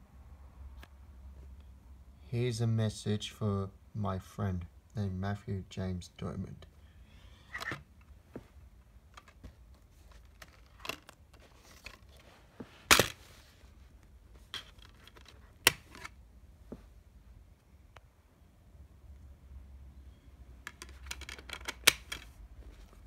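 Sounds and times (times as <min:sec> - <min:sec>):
low background noise: 0:00.0 - 0:23.0
handling clicks and knocks: 0:20.6 - 0:23.0.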